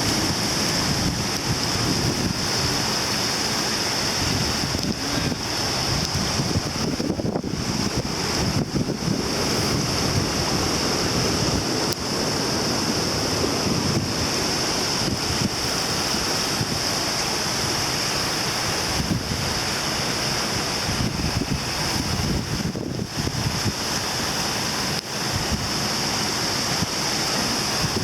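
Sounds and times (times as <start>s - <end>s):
rushing floodwater: 0.0s - 28.0s
wind buffeting microphone: 0.0s - 28.0s.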